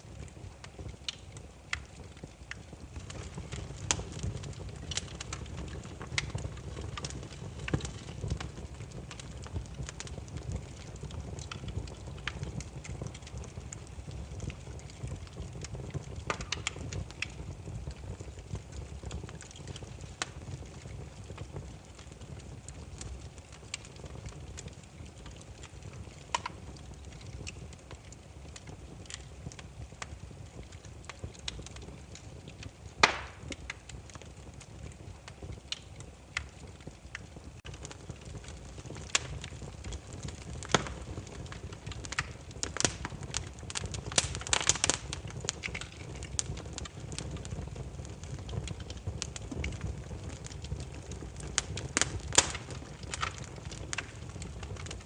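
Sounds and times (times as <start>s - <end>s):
firewood crackling and popping: 0.0s - 55.0s
low rumble of flames: 0.0s - 55.0s
loud sharp pop: 33.0s - 33.4s.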